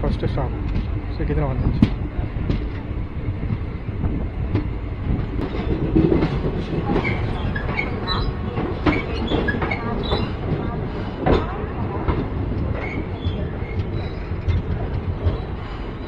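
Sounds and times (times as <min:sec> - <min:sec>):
train wheels rumbling on rails: 0:00.0 - 0:16.0
wheels clicking over rail joints: 0:05.4 - 0:15.4.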